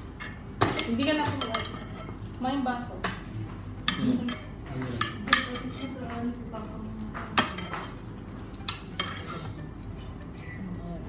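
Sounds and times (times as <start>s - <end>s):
cutlery clinking on plates: 0.0s - 2.2s, 3.0s - 6.4s, 7.0s - 9.8s.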